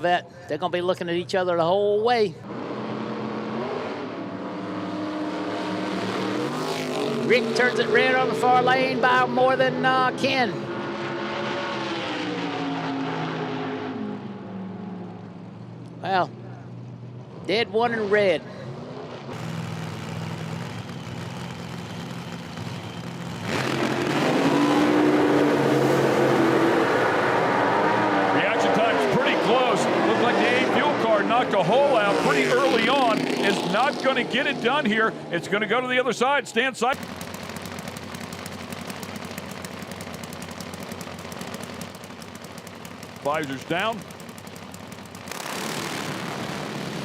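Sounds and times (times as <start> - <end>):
drag racing car engines rumbling: 0.0 - 47.0
car accelerating: 2.4 - 15.4, 17.9 - 36.2, 36.9 - 47.0
racing engine idling with popping: 19.3 - 24.3, 36.9 - 47.0.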